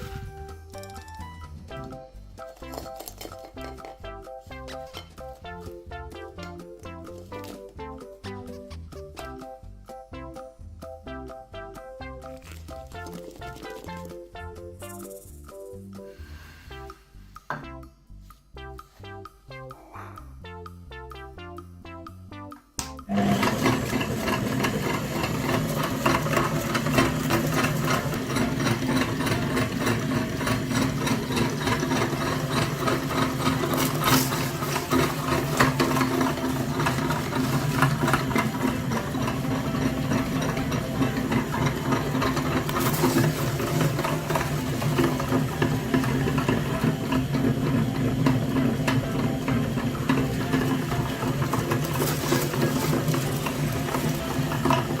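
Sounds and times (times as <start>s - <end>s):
small motor rattling: 23.2s - 55.0s.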